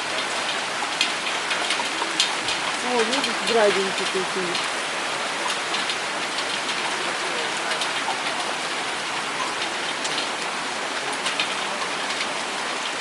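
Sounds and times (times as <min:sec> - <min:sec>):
hailstones ticking: 0:00.0 - 0:13.0
steady rain hiss: 0:00.0 - 0:13.0.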